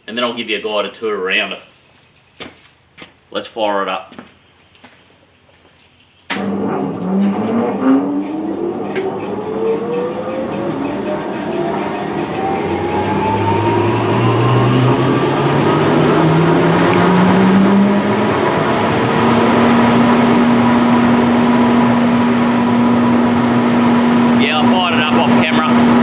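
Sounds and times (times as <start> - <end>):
grinder motor humming: 6.4 - 26.0.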